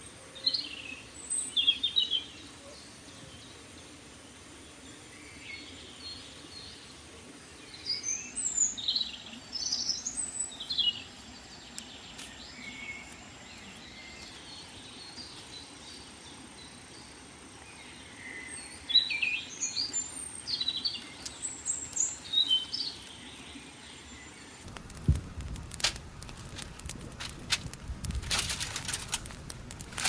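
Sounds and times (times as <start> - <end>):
steady background hiss: 0.0 - 30.0
birds chirping and whistling: 18.1 - 24.6
sharp clicks: 24.7 - 30.0.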